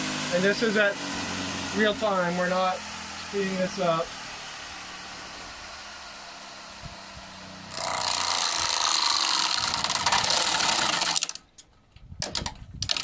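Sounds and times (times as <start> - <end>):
bench grinder spinning: 0.0 - 11.4
blades chattering into wood: 7.7 - 11.4.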